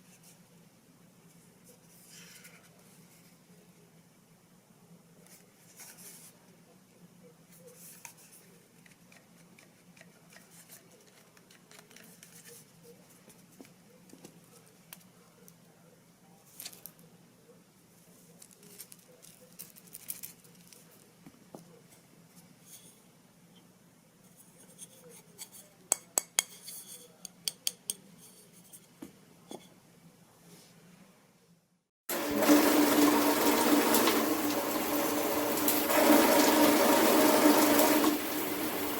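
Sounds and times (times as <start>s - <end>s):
water spraying from shower head: 32.1s - 38.9s.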